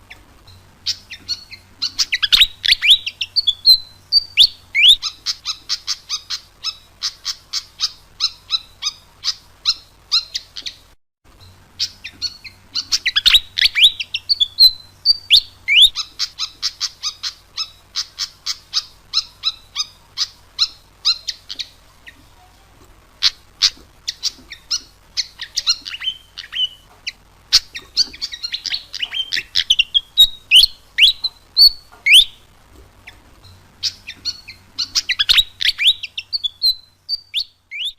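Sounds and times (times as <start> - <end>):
bird song with sharp chips: 0.0 - 22.3, 23.2 - 37.9
faint low hum: 0.0 - 37.9.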